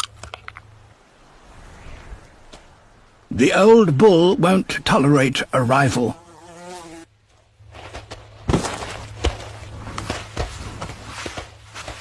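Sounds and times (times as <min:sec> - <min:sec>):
hooves thudding on dry ground: 0:07.2 - 0:12.0.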